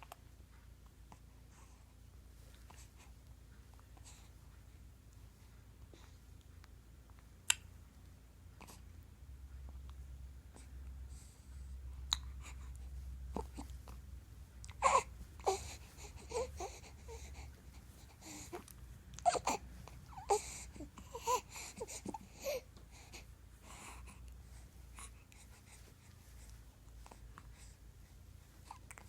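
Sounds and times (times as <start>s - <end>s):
baby squealing and fussing: 19.2s - 22.6s.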